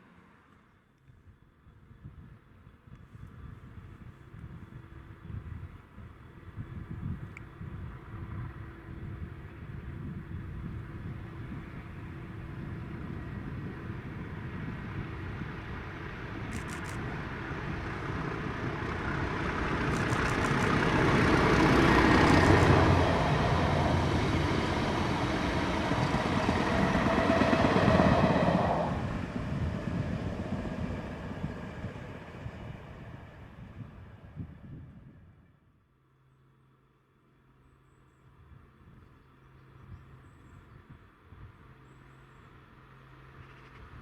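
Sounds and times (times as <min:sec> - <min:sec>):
train passing rumble: 0:03.3 - 0:35.6.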